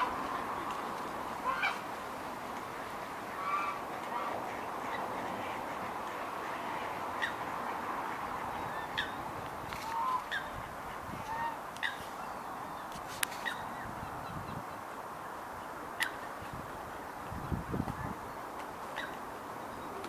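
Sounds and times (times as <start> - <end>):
steady background hiss: 0.0 - 20.0
waterfowl honking: 1.4 - 1.8, 3.3 - 9.2, 9.8 - 12.0, 18.9 - 19.2.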